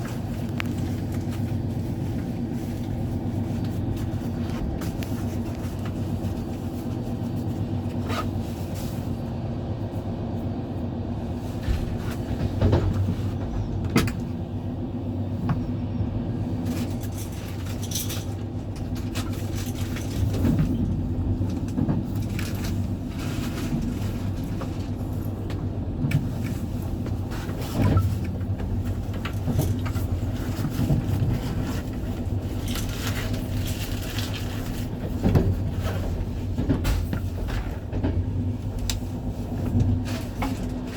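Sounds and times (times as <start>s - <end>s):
train rumbling: 0.0s - 40.9s
wheel clicks and carriage rattling: 16.6s - 39.1s.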